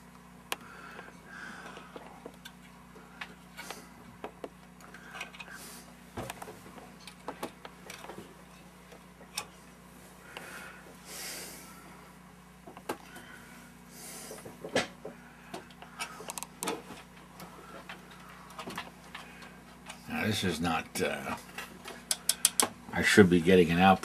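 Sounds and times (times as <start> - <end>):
steady low hum: 0.0 - 24.0
tools clicking and tapping on workbench: 21.8 - 22.7.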